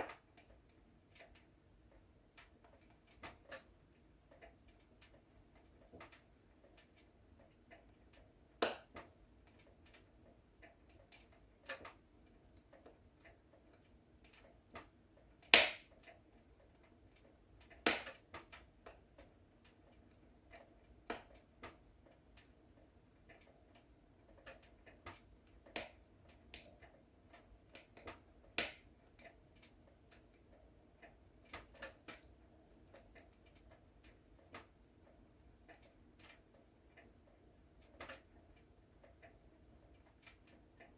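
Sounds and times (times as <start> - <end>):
wood fire crackling and popping: 0.0 - 22.6, 23.2 - 34.8
faint low hiss: 0.0 - 40.9.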